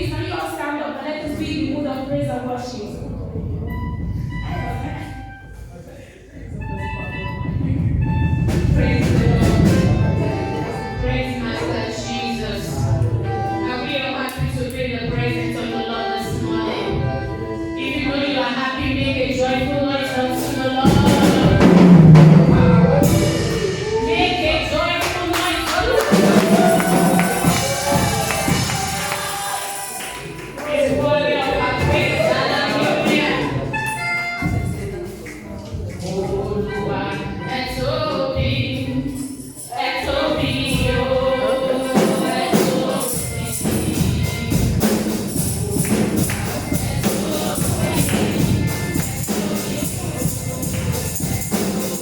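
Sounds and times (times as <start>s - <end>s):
voices singing gospel: 7.2s - 34.2s, 35.9s - 52.0s
tambourine shaken and struck: 22.4s - 31.0s, 39.0s - 52.0s.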